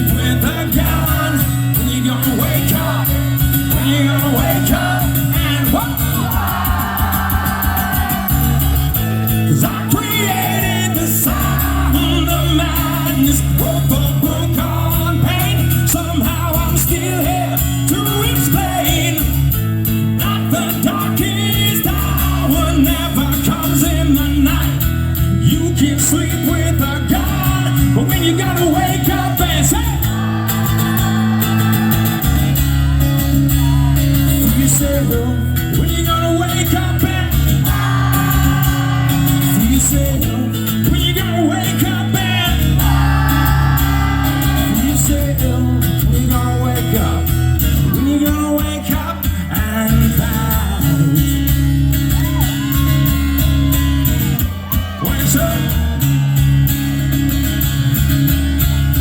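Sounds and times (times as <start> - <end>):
person singing: 0.0 - 8.6, 9.4 - 19.2, 25.6 - 47.2, 47.8 - 51.4
guitar playing: 0.0 - 59.0
live rock music: 0.0 - 59.0.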